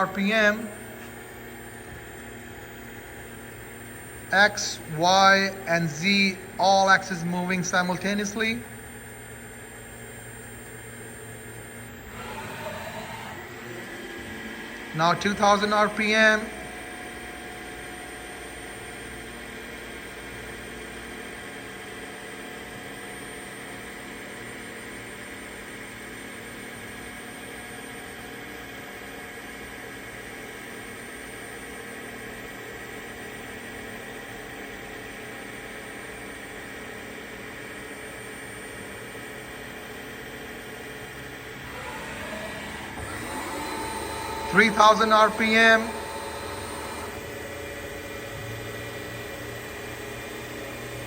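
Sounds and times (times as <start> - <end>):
milling machine spindle whirring: 0.0 - 28.1, 31.7 - 51.0.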